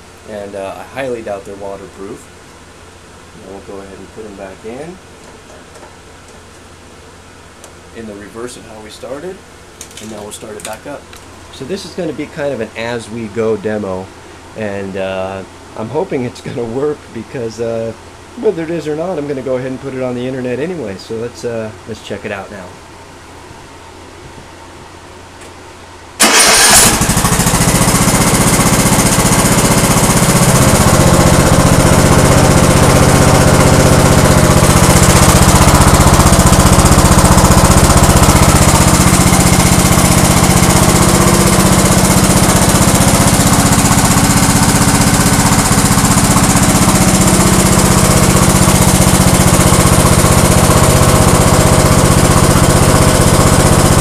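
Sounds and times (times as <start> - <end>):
lawn tractor engine running: 26.2 - 54.0.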